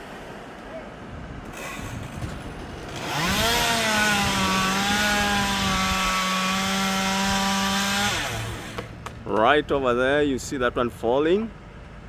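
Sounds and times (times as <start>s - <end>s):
chainsaw revving at full throttle: 1.5s - 9.0s.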